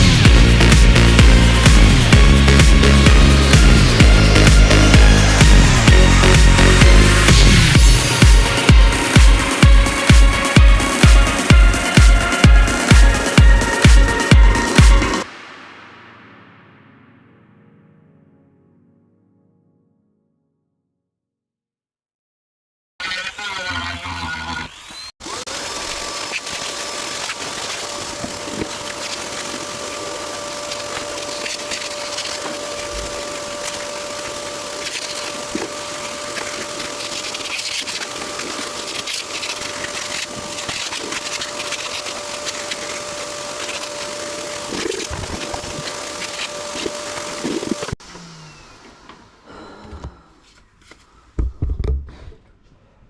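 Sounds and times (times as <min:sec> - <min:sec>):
rotary tool grinding wood: 0:00.0 - 0:15.2, 0:23.0 - 0:49.1.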